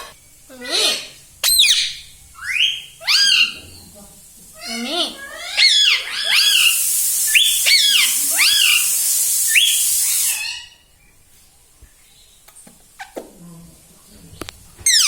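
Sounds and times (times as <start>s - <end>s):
loud steady hiss: 0.0s - 13.0s
parrot whistled calls: 0.7s - 3.6s, 5.2s - 10.8s.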